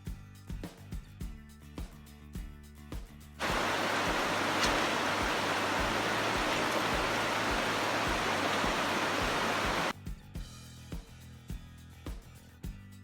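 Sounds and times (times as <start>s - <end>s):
waterfall rushing: 3.4s - 9.9s.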